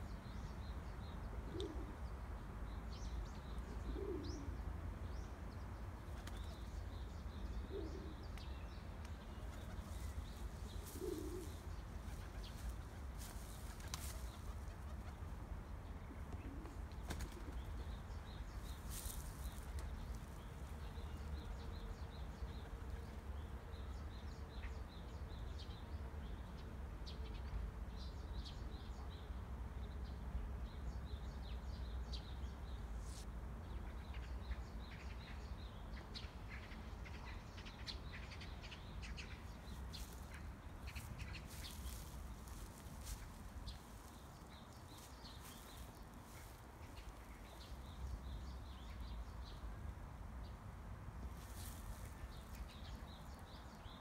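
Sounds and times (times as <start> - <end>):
small birds chirping: 5.1 - 15.4, 16.0 - 25.8, 30.7 - 49.7.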